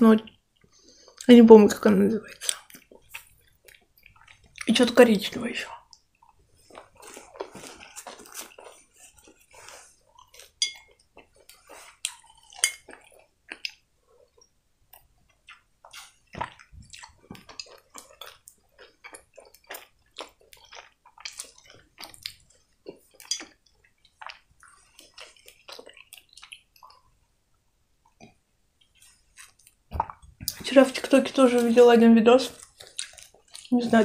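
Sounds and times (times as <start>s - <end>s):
wet chewing of candy: 2.2s - 27.3s, 28.0s - 34.0s.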